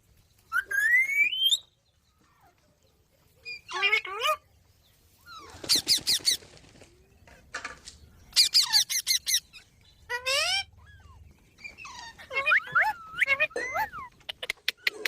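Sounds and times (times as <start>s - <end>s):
parrot squawking: 8.3s - 11.1s, 11.9s - 15.0s.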